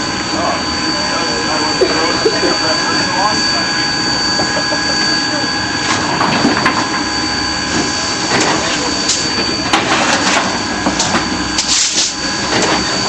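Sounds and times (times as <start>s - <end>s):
steady high whine: 0.0s - 13.0s
steam locomotive hissing: 0.0s - 13.0s.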